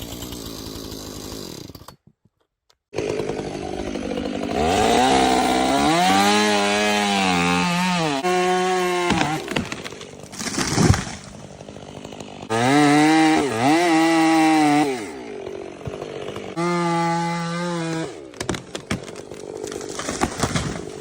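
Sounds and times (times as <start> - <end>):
chainsaw cutting wood: 0.0 - 2.1, 2.9 - 21.0
sharp knocks and cracks: 9.0 - 11.3, 18.3 - 21.0.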